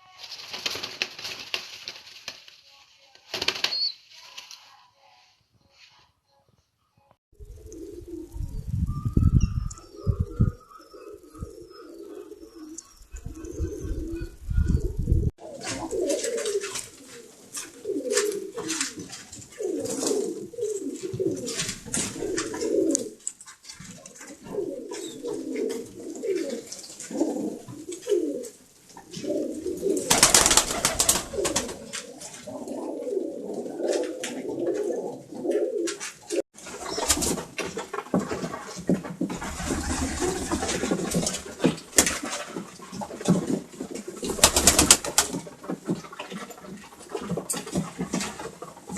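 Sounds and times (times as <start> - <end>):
pigeons cooing: 7.4 - 37.6.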